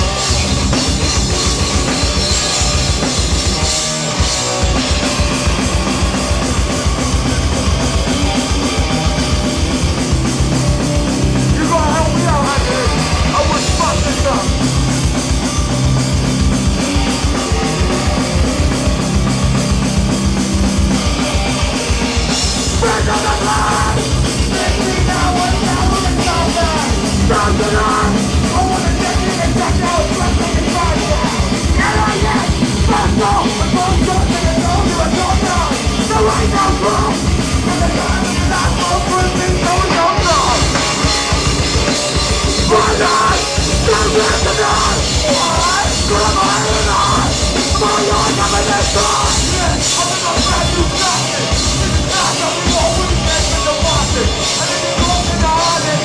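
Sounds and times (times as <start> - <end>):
hardcore band playing live: 0.0 - 56.0
shouted vocals: 22.7 - 40.9, 42.6 - 56.0.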